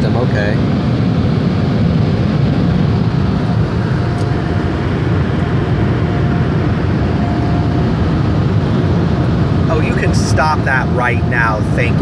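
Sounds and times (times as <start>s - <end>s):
faint whine: 0.0s - 12.0s.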